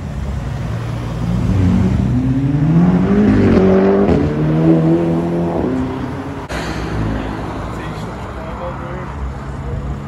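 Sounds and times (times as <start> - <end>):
car engine accelerating hard: 0.8 - 6.4.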